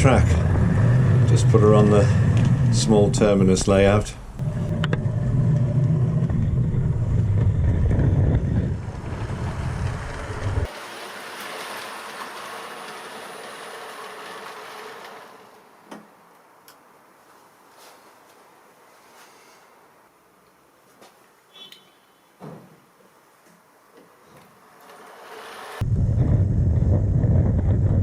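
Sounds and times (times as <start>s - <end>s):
model train motor rumble: 4.4s - 15.6s, 24.7s - 25.8s
faint hiss: 16.5s - 24.6s.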